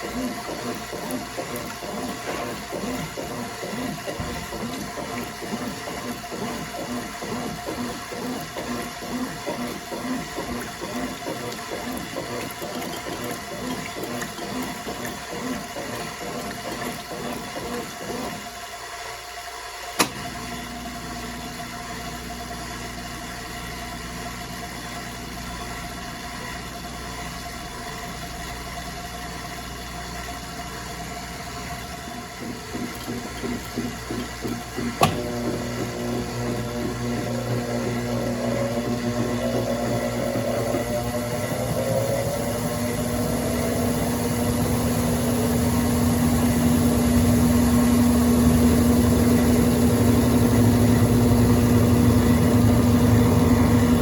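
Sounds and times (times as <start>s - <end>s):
steady motor hum: 0.0s - 18.8s, 20.3s - 54.0s
washing machine water churning: 0.0s - 54.0s
washing machine click: 34.2s - 35.4s.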